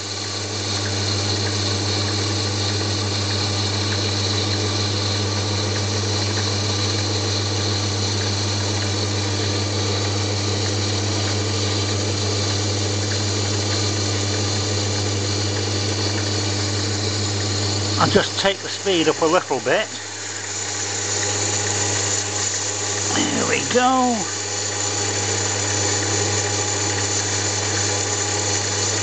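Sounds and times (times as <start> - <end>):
lathe running with low hum: 0.0 - 29.0
cutting tool hiss: 13.8 - 29.0.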